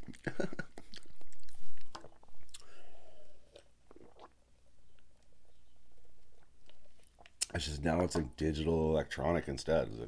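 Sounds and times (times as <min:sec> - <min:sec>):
chewing with wet clicks: 0:00.0 - 0:02.7, 0:06.3 - 0:07.6.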